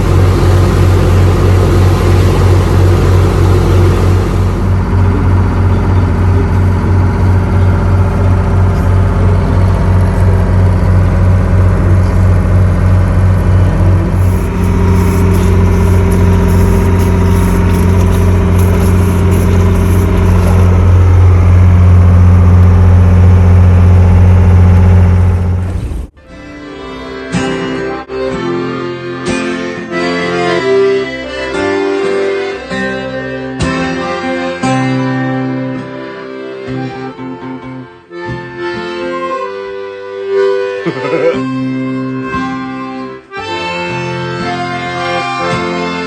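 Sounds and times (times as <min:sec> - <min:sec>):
diesel engine chugging: 0:00.0 - 0:27.3.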